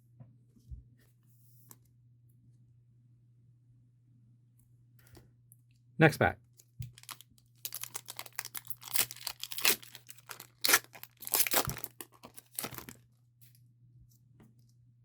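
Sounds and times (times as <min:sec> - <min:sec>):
foil wrapper tearing and crinkling: 0:06.8 - 0:13.0.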